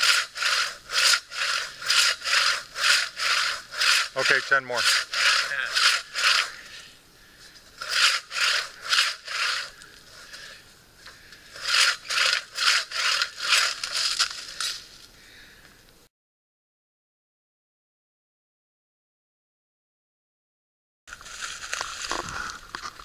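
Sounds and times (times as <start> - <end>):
hand saw cutting wood: 0.0 - 6.8, 7.8 - 10.5, 11.5 - 14.8.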